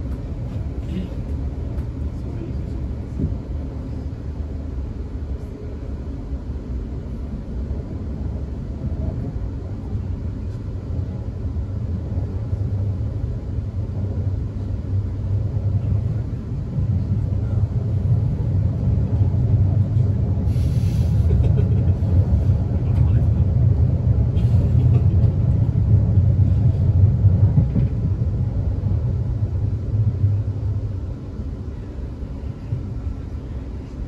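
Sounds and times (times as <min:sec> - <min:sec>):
train wheels rumbling: 0:00.0 - 0:34.0
brief hiss: 0:20.5 - 0:21.3.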